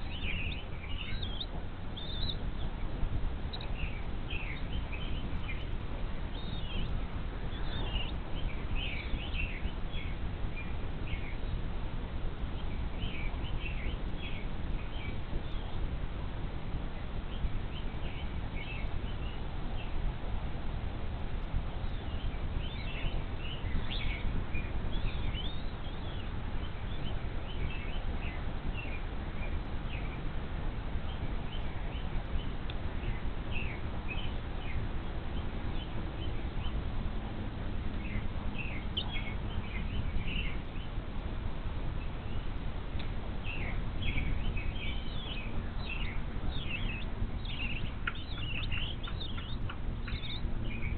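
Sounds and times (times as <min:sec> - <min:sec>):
low rumble of wind: 0:00.0 - 0:50.9
high thin bird chirps: 0:43.5 - 0:50.9.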